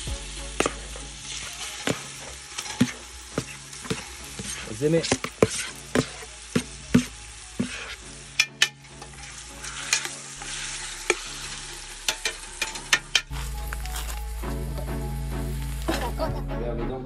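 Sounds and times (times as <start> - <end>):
chicken sizzling in a pot: 0.0 - 16.3
metal spoon scraping and clinking: 8.3 - 11.2.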